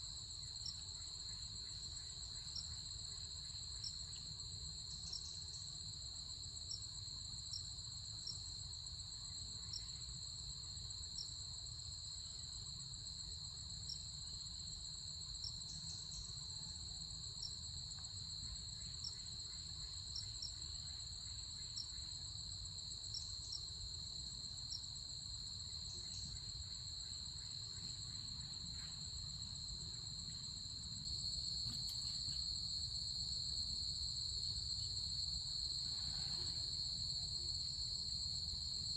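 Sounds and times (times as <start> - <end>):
insects chirring: 13.0 - 38.9
faint ticks: 31.6 - 32.5.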